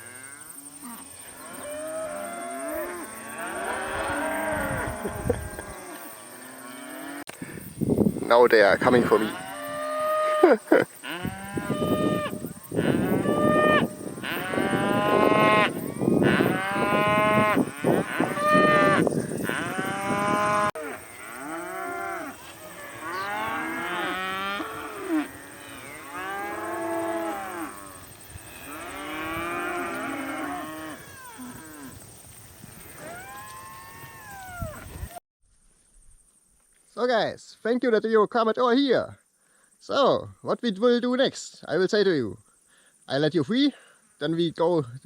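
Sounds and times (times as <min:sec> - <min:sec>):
cattle mooing: 0:09.0 - 0:27.8.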